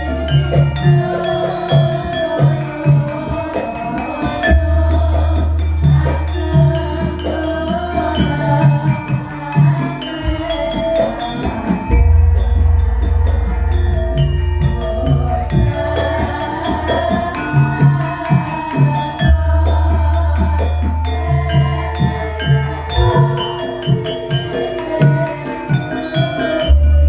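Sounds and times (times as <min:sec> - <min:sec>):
deep bass notes: 0:11.9 - 0:16.4.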